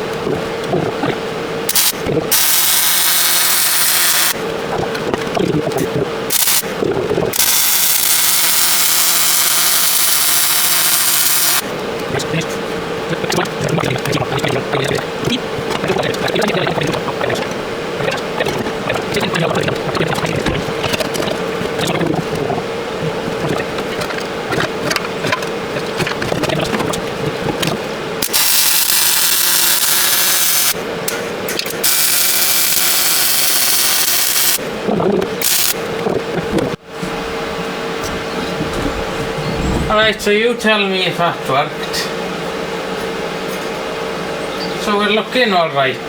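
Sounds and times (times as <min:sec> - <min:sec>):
welder hum: 0:00.0 - 0:40.2
arc welding crackle and pops: 0:01.7 - 0:11.6, 0:23.4 - 0:30.8, 0:31.6 - 0:34.6.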